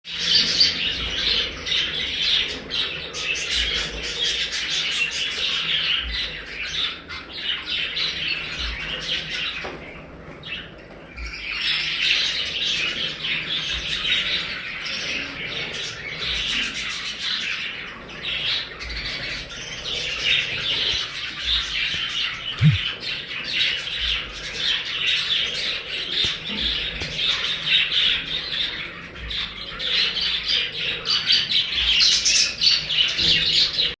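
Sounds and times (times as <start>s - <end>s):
budgerigar flock chattering: 10.5s - 34.0s.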